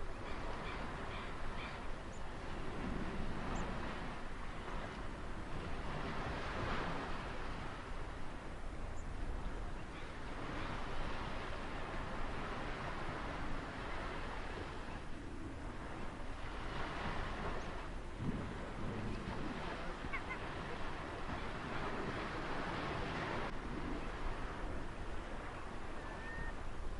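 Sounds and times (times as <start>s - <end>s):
low rumble of surf: 0.0s - 26.9s
ocean waves washing onto shore: 0.0s - 26.9s.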